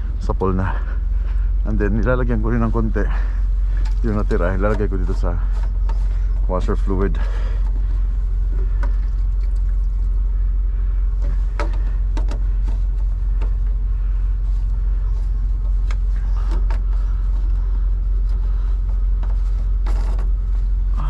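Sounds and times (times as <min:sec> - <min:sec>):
diesel engine idling: 0:00.0 - 0:21.0
light clicks and knocks: 0:03.7 - 0:07.9, 0:08.5 - 0:10.0, 0:11.2 - 0:13.8, 0:15.4 - 0:20.4.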